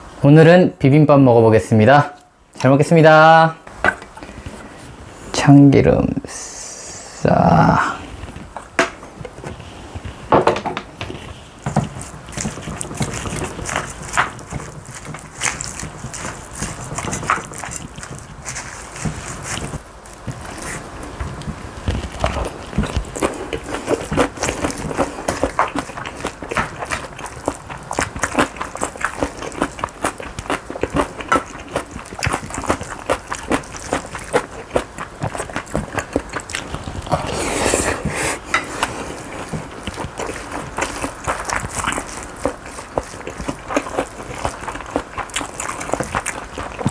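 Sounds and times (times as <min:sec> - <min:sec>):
rice squelching: 0:11.3 - 0:21.4, 0:22.1 - 0:46.9.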